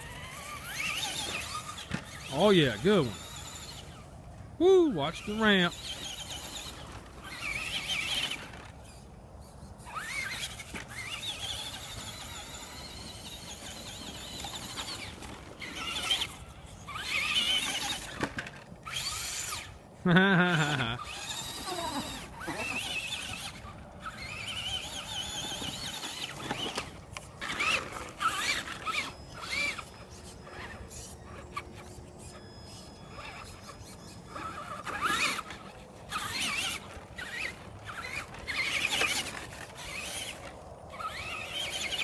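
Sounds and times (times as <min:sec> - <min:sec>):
electric toy truck motor whining: 0:00.0 - 0:42.0.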